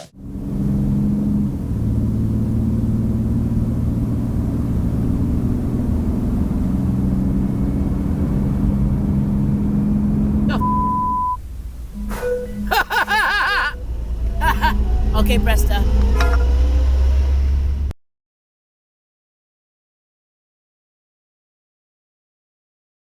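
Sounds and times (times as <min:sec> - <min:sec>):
engine running: 0:00.0 - 0:17.9
short high-pitched beep: 0:10.5 - 0:11.4.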